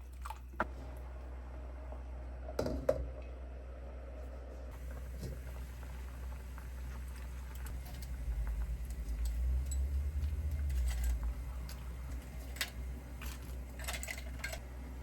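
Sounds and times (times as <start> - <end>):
low steady hum: 0.0 - 15.0
utensils and dishes clinking: 7.5 - 14.7.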